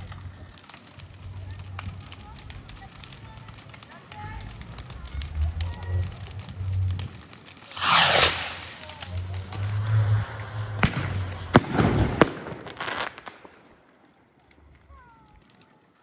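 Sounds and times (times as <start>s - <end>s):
firework bangs with crackling: 0.0s - 15.6s
firework hissing rush: 5.2s - 13.5s.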